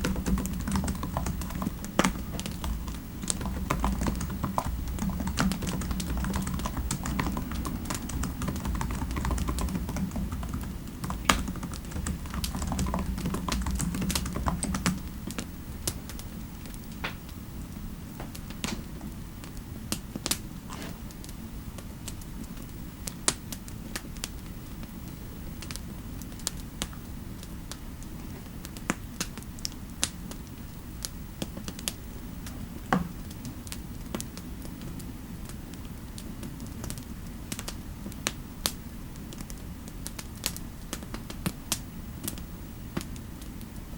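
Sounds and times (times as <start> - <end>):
typing on a keyboard: 0.0 - 15.5.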